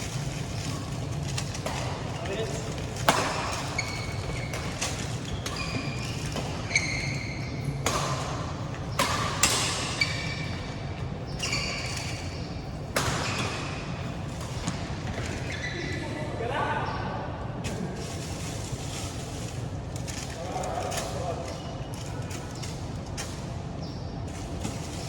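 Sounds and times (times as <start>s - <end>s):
shoes squeaking on court: 0.0s - 16.4s, 17.7s - 25.0s
racket hitting shuttlecock: 0.6s - 15.3s.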